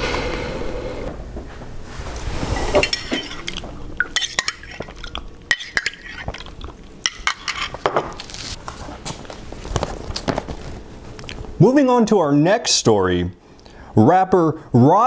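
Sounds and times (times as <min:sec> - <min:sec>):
metal spoon clinking on tableware: 0:07.1 - 0:07.8.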